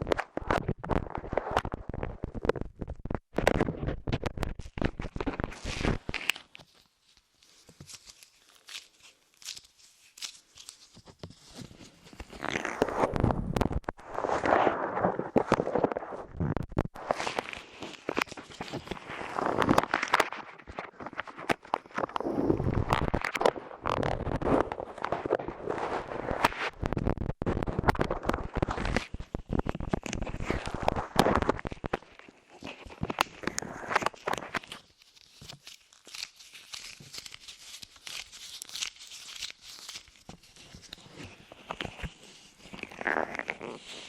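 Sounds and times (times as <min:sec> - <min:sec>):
clay crackling on microphone: 0:00.0 - 0:44.0
muffled rubbing swishes: 0:14.0 - 0:16.4.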